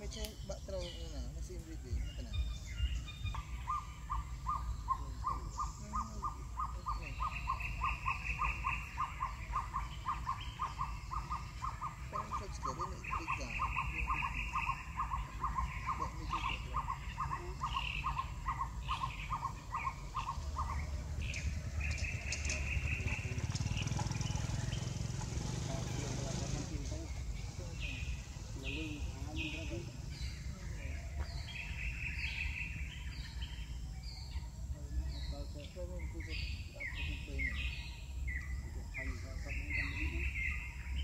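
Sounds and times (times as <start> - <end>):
fast high bird trill: 2.8 - 26.2.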